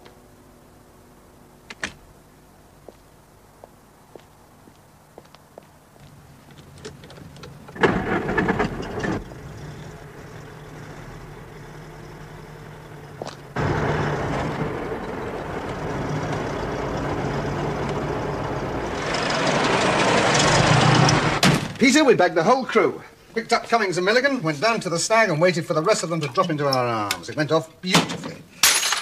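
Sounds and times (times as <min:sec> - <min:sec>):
car engine starting and revving: 0:07.8 - 0:21.4.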